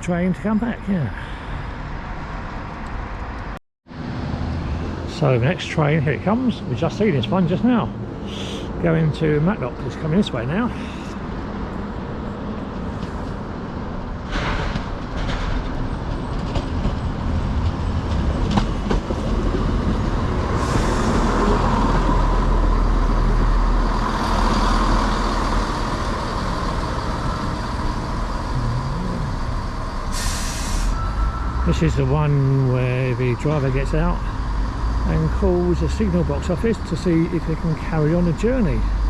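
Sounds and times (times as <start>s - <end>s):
diesel train engine rumbling: 0.0s - 39.0s
short hisses: 30.1s - 31.0s.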